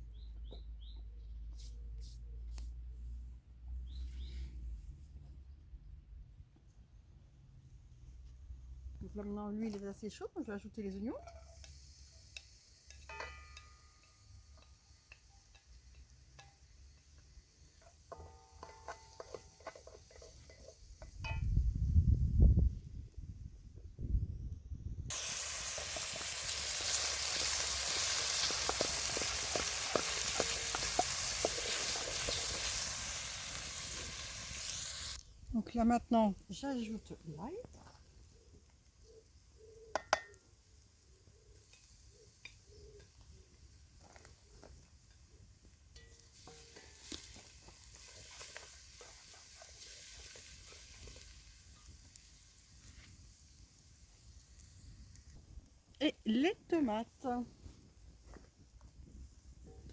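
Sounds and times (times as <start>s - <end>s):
onions sizzling in hot oil: 11.5s - 21.2s, 25.1s - 35.2s, 46.0s - 55.3s
wood fire pops and crackles: 25.1s - 35.2s, 46.1s - 53.5s.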